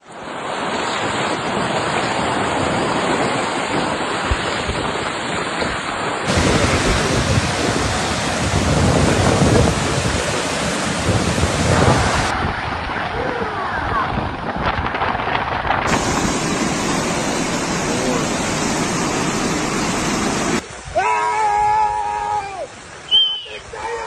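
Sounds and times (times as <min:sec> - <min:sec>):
rush of water: 0:00.0 - 0:24.0
wind buffeting microphone: 0:00.6 - 0:21.0.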